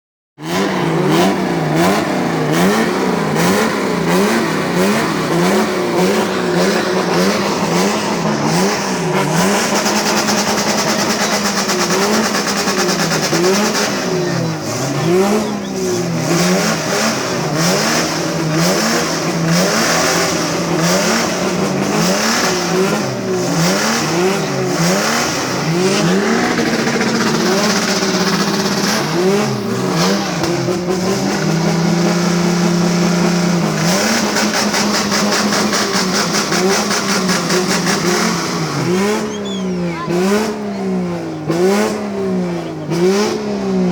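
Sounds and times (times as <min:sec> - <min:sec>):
car engine revving: 0:00.4 - 0:43.9.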